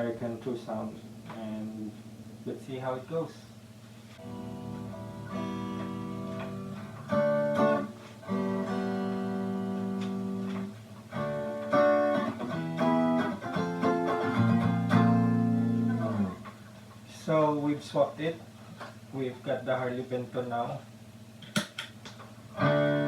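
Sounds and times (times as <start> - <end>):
electric guitar chords: 4.1 - 17.1, 22.3 - 23.0.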